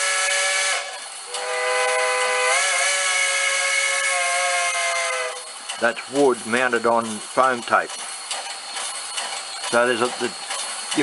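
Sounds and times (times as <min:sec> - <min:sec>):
steam whistle through small speaker: 0:00.0 - 0:05.5
steady steam hiss: 0:00.0 - 0:11.0.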